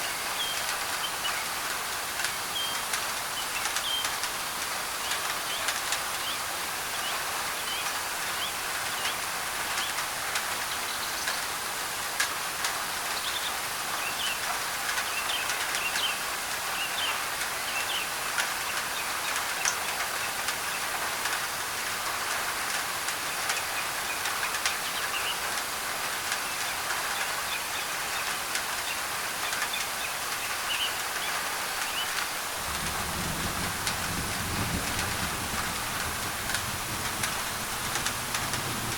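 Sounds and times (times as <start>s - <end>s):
rain on a tin roof: 0.0s - 38.9s
low thunder rumble: 32.6s - 38.9s.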